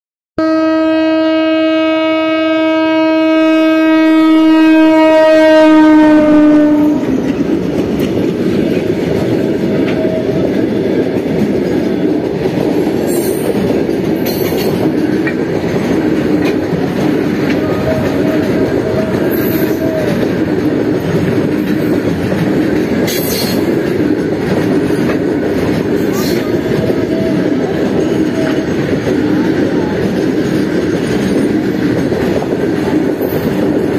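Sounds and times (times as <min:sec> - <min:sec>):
locomotive horn: 0:00.4 - 0:07.2, 0:09.8 - 0:10.6, 0:17.4 - 0:20.4, 0:26.2 - 0:29.9
freight train rumbling past: 0:00.4 - 0:33.9
wheels clickety-clack over rail joints: 0:04.6 - 0:33.9.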